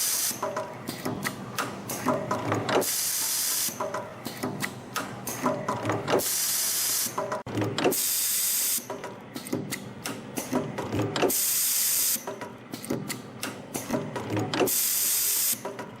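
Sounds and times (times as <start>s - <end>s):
loud machine hiss: 2.8s - 3.8s, 6.2s - 7.2s.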